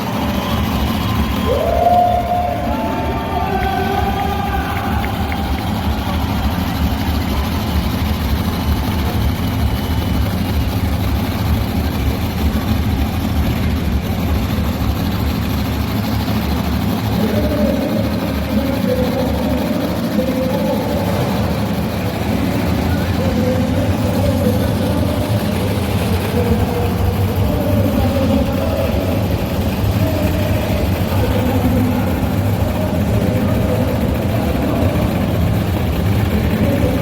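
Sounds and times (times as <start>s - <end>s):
heavy vehicle engine rumble: 0.0s - 37.0s
higher engine tone: 0.0s - 37.0s.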